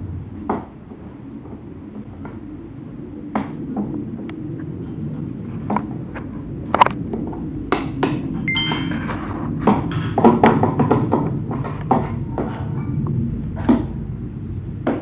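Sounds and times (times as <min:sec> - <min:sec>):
metallic ping: 0:08.5 - 0:09.3.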